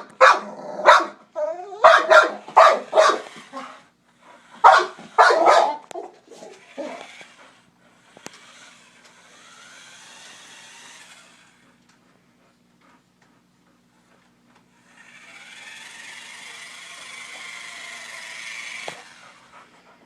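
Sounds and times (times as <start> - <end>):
dog barking: 0.0 - 1.2, 1.8 - 3.4, 4.6 - 6.2.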